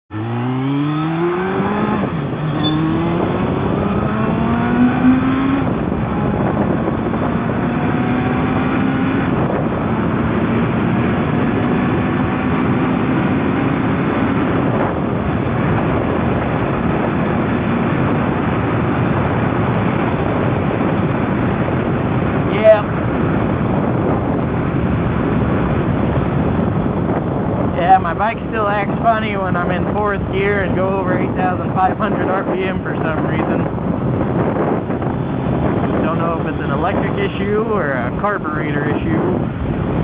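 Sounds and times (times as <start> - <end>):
motorcycle engine accelerating: 0.1 - 38.6
loud rushing noise: 1.5 - 6.4.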